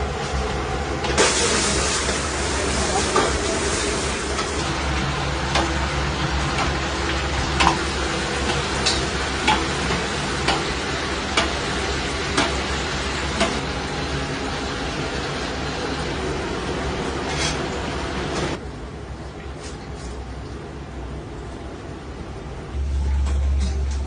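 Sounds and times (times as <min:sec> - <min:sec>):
rice sizzling in hot oil: 0:01.1 - 0:16.2.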